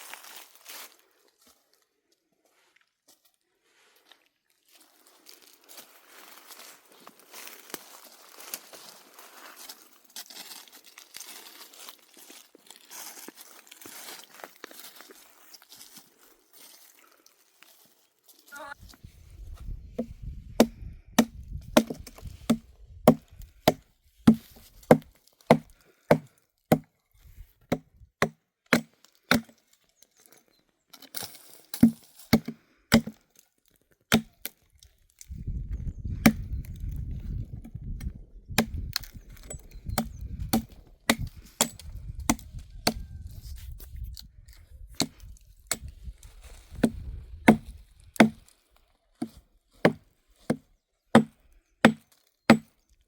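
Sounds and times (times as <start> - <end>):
sharp chopping strikes: 20.0 - 26.9, 27.7 - 29.5, 31.8 - 33.2, 34.1 - 34.4, 40.0 - 43.0, 47.5 - 48.4, 51.2 - 52.7.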